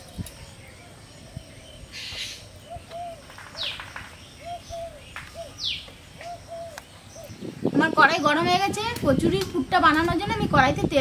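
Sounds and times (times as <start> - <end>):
high falling bird chirp: 0.0 - 8.3
birds calling low notes: 0.0 - 10.7.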